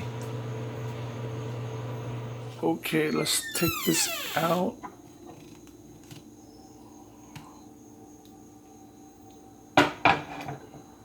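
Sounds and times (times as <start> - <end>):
microwave oven humming: 0.0 - 3.4
dish knocking and rattling: 9.8 - 10.6.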